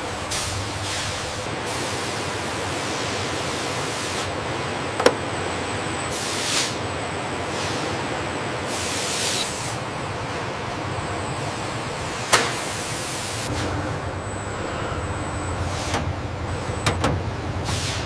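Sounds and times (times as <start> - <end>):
steady machine noise: 0.0 - 18.0
air hissing: 17.6 - 18.0.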